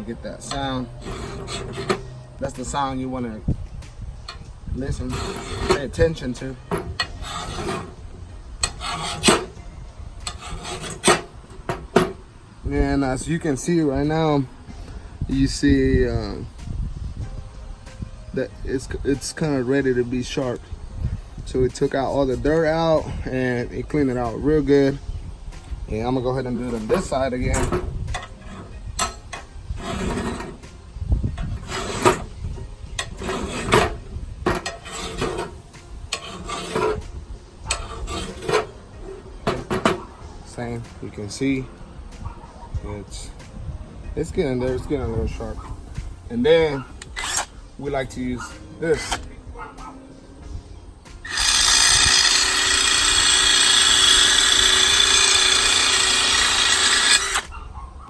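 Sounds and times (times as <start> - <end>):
grinding wheel grinding metal: 0.0 - 3.3, 4.3 - 12.3, 25.6 - 41.3, 46.4 - 47.5, 51.2 - 57.6
file rasping on steel blade: 0.4 - 2.7, 4.9 - 8.0, 8.6 - 9.6, 10.2 - 12.2, 26.0 - 30.6, 31.3 - 37.1, 37.7 - 40.1, 46.7 - 47.5, 48.4 - 49.3, 51.3 - 57.6
motor hum: 51.2 - 57.5.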